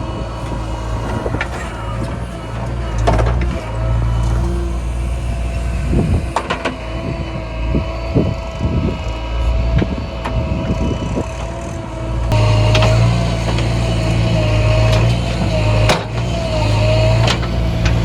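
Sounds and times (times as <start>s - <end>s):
diesel engines droning: 0.0s - 18.0s
steady machine whine: 0.0s - 18.0s
machinery knocks and clanks: 12.3s - 18.0s.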